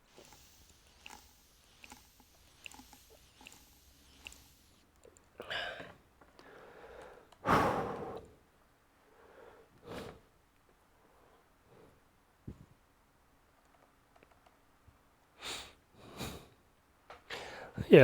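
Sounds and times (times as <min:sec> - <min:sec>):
man breathing: 0:05.4 - 0:08.4, 0:09.0 - 0:10.2, 0:17.3 - 0:17.8.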